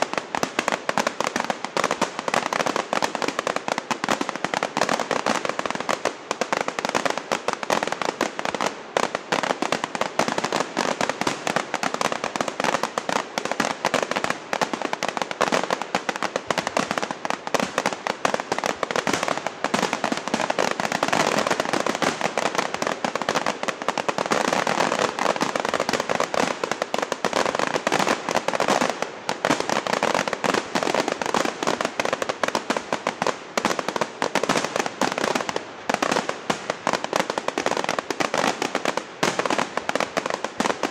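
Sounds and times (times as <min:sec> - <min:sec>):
fireworks crackling and popping: 0:00.0 - 0:40.9.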